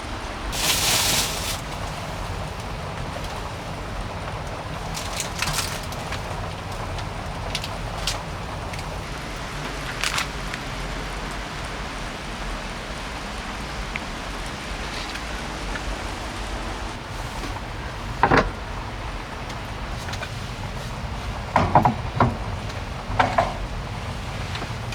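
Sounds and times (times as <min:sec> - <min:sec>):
heavy rain falling: 0:00.0 - 0:24.9.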